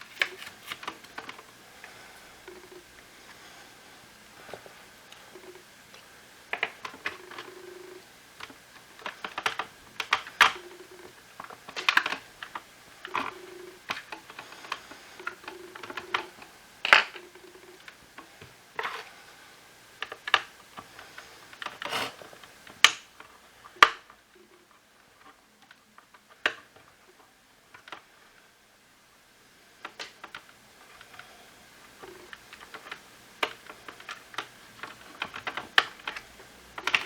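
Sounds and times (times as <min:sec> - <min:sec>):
plastic parts clicking and knocking: 0:06.5 - 0:19.1, 0:22.7 - 0:27.0, 0:32.0 - 0:37.0.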